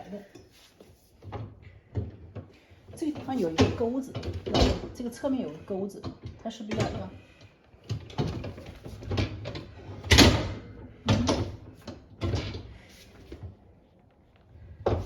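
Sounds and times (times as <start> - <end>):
dishwasher parts clattering: 7.9 - 12.8.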